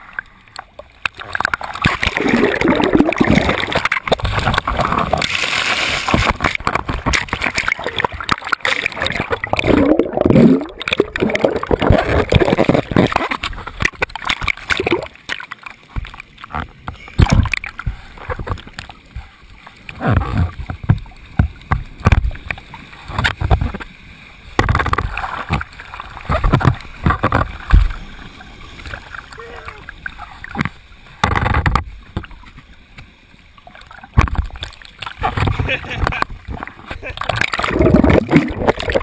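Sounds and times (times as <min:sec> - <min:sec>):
water splashing and gurgling: 0:00.0 - 0:39.0
person speaking: 0:29.4 - 0:29.9, 0:35.6 - 0:36.2.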